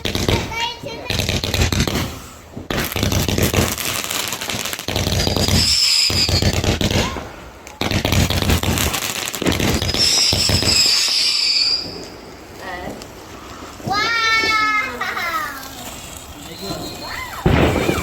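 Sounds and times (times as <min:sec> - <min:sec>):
fireworks crackling and banging: 0:00.0 - 0:18.0
firework whistle: 0:05.2 - 0:07.2, 0:09.6 - 0:12.3, 0:16.4 - 0:18.0.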